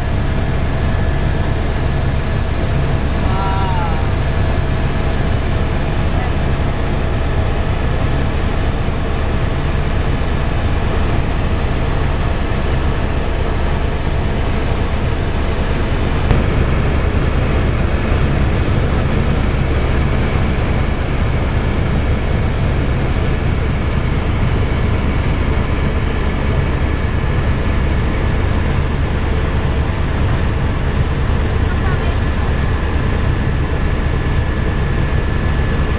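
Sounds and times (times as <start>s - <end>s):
helicopter engine and rotor: 0.0s - 35.9s.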